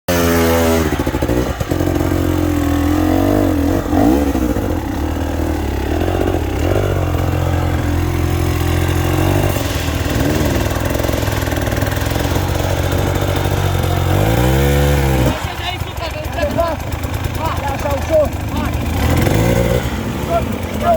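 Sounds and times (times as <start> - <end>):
dirt bike engine revving: 0.1 - 20.9.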